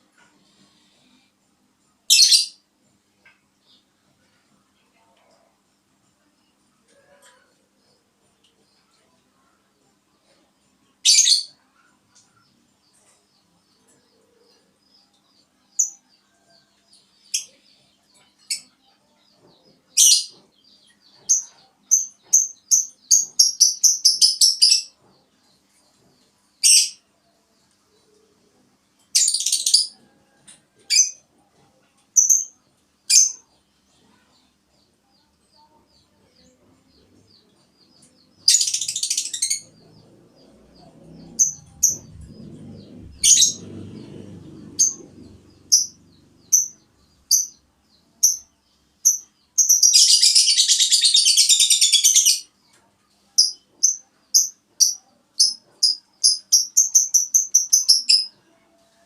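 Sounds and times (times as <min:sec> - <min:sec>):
small bird chirping and trilling: 0:02.1 - 0:02.6, 0:11.0 - 0:15.1, 0:17.2 - 0:25.0, 0:35.1 - 0:43.7, 0:44.6 - 0:52.5, 0:53.4 - 0:58.4.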